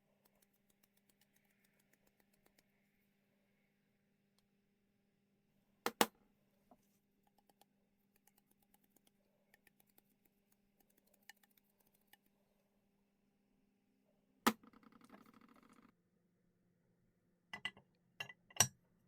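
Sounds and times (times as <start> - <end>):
faint clicks and taps: 0.1 - 2.8, 6.7 - 12.4.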